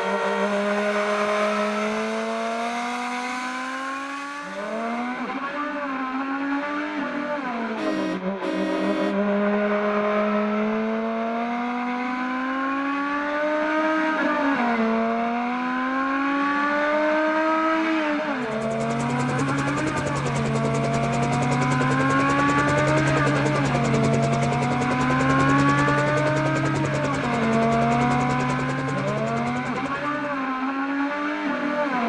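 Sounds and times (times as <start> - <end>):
car engine accelerating through gears: 0.0 - 8.6.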